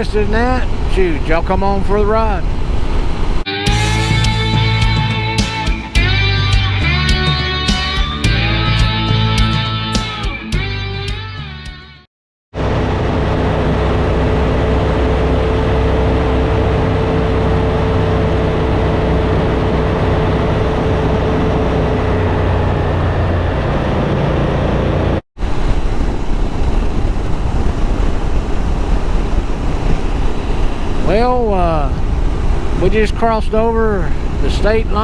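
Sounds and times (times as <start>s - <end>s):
wind rush: 0.0s - 6.2s, 12.6s - 35.0s
motorcycle engine cruising: 12.6s - 31.0s.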